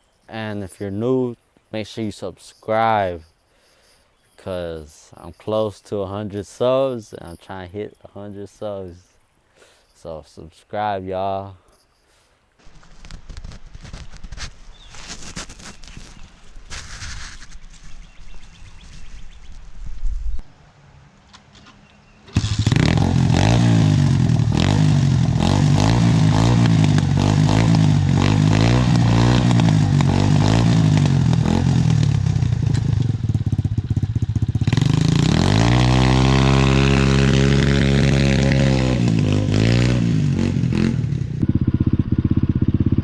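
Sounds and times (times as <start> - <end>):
pit bike engine revving: 22.3 - 43.0.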